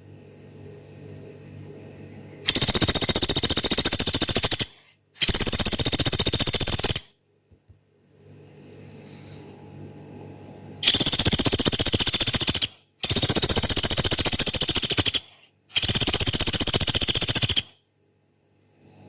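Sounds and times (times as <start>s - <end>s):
woodpecker high-pitched trills: 2.5s - 7.1s, 10.8s - 17.8s.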